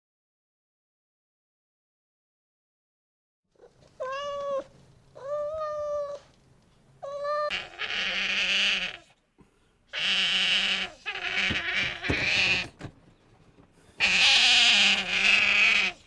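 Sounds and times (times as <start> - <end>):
meow-like animal cries: 4.0 - 6.2, 7.0 - 9.0, 10.0 - 12.7, 14.0 - 16.0
harsh bleat-like animal call: 7.5 - 9.1, 9.9 - 12.7, 14.0 - 16.0.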